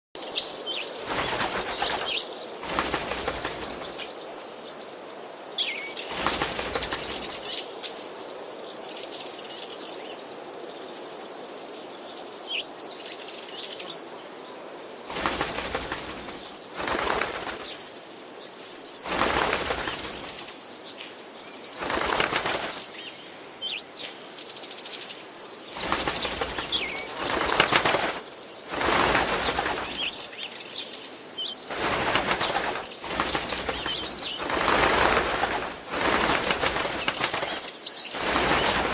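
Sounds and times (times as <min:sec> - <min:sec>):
birds fluttering wings: 0:00.3 - 0:04.4, 0:06.0 - 0:08.0, 0:15.0 - 0:23.8, 0:25.6 - 0:38.9.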